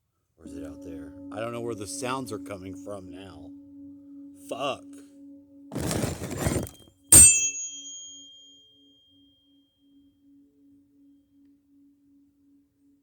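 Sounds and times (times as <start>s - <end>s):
low pulsing tone: 0.4s - 7.9s, 9.1s - 13.0s
ringing metallic strike: 0.4s - 9.3s.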